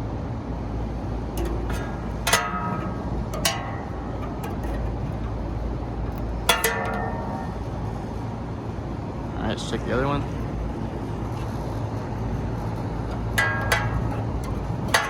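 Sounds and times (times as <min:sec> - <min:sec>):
steady low rumble: 0:00.3 - 0:15.0
metal clanks: 0:01.3 - 0:08.7, 0:12.4 - 0:15.0.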